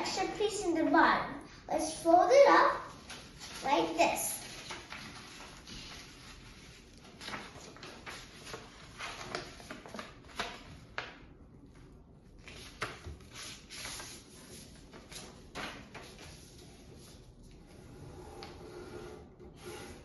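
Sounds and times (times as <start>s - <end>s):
paper folding and rustling: 2.9s - 17.6s.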